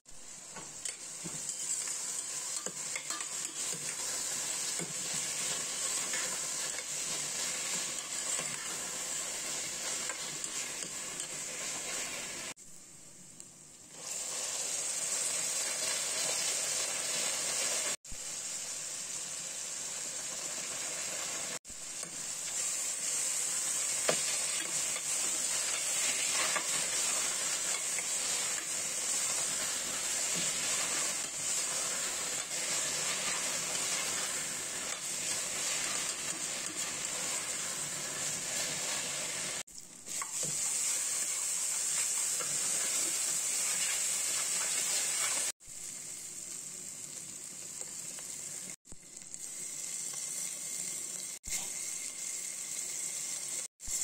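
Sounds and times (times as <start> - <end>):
vegetables sizzling in oil: 0.0 - 54.0
metal spoon stirring in pot: 0.8 - 12.0.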